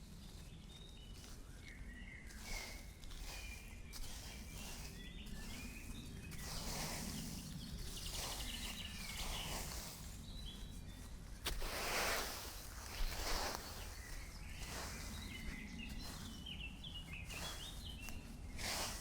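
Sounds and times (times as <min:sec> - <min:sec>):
birds chirping: 0:00.2 - 0:19.0.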